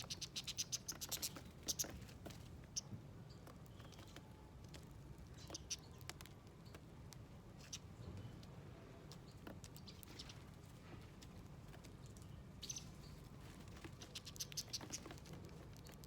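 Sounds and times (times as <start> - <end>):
faint bird chirps: 0.0 - 2.0, 9.2 - 10.6, 12.2 - 16.0
birds pecking and hopping: 0.0 - 16.0.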